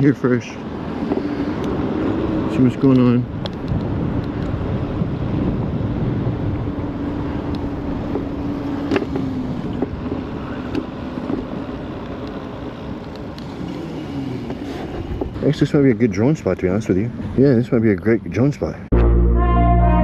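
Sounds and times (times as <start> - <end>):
wind rushing over microphone: 0.6 - 13.4.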